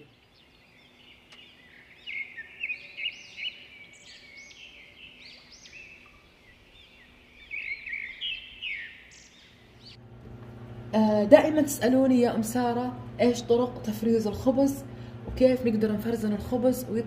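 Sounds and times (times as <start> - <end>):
small birds chirping: 0.0 - 10.0
faint steady hum: 0.0 - 17.0.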